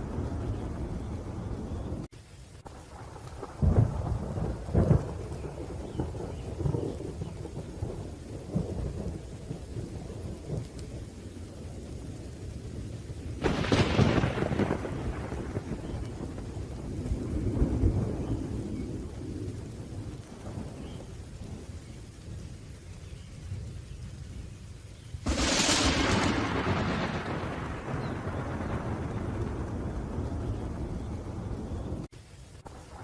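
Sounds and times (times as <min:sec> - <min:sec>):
rolling thunder: 0:00.0 - 0:33.0
steady rain: 0:00.0 - 0:33.0
loud thunderclap: 0:02.9 - 0:10.9, 0:13.4 - 0:21.7, 0:25.2 - 0:32.1.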